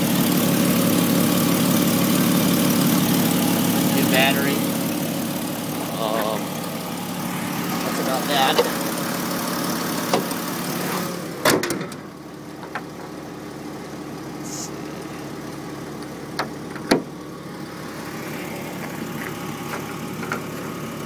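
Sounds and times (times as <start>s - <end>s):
car engine idling: 0.0s - 21.0s
car hood slamming shut: 11.4s - 12.1s, 16.4s - 17.1s.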